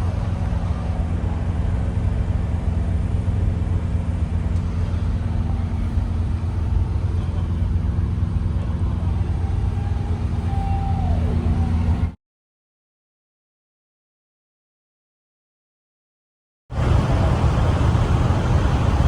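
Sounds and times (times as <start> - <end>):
truck engine rumbling: 0.0 - 12.2, 16.7 - 19.0.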